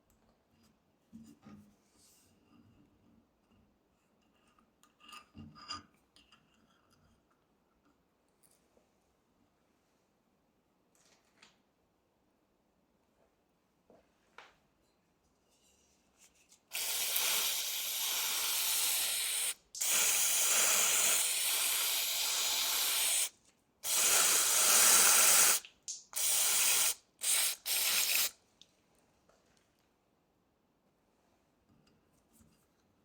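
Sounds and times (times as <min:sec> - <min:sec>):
pressurised spray hissing: 0:16.7 - 0:25.6, 0:26.2 - 0:28.4.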